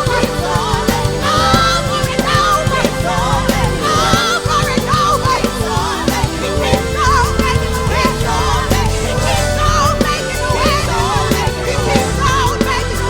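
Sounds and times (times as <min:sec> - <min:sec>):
worship band music: 0:00.0 - 0:13.0.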